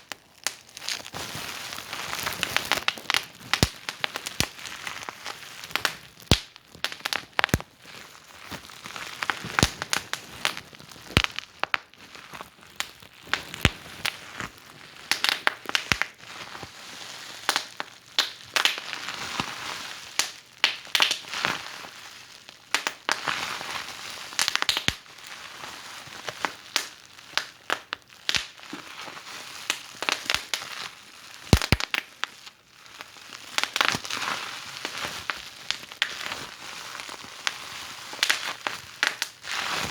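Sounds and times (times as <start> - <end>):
wood fire crackling: 0.0 - 16.2, 17.5 - 18.9, 20.2 - 21.3, 24.3 - 25.3, 26.2 - 30.6, 31.4 - 32.2, 37.0 - 39.9.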